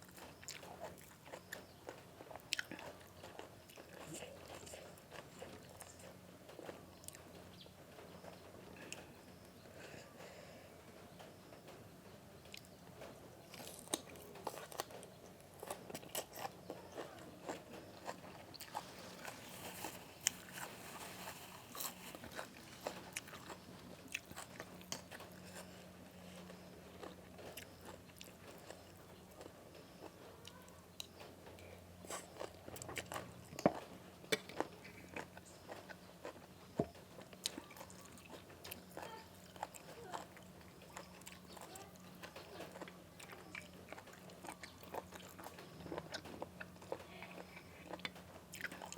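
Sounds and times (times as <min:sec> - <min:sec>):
person chewing crunchy food: 0:00.0 - 0:07.4, 0:12.5 - 0:48.9.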